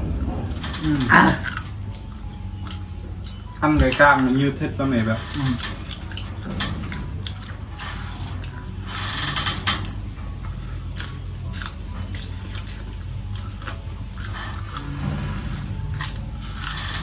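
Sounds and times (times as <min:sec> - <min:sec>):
low steady hum: 0:00.0 - 0:17.0
crunchy chewing: 0:00.4 - 0:03.6, 0:09.8 - 0:17.0.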